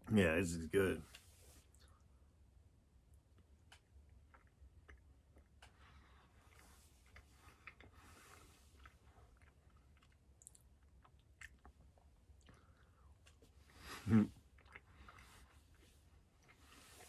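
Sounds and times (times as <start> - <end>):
faint chewing: 3.3 - 17.0
small mouth clicks: 8.8 - 11.8.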